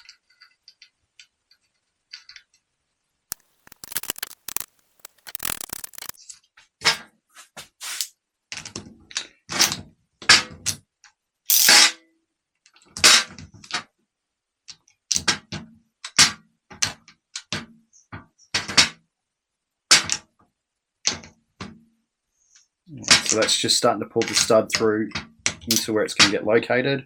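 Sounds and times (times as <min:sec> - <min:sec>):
hand tool metallic clicks and scrapes: 0:03.3 - 0:06.1, 0:11.5 - 0:11.9, 0:25.7 - 0:25.9.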